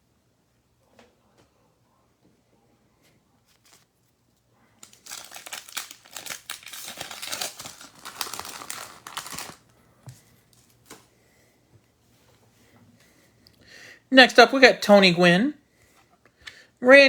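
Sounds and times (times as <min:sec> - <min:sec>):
wrapper tearing and crinkling: 0:04.8 - 0:09.7.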